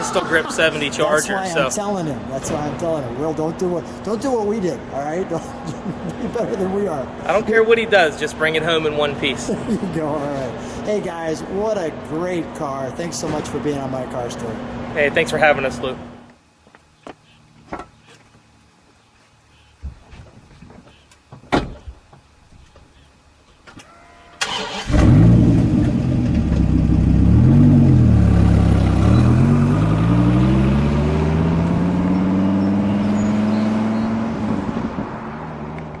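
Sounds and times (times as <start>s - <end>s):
car engine starting and revving: 24.4s - 36.0s.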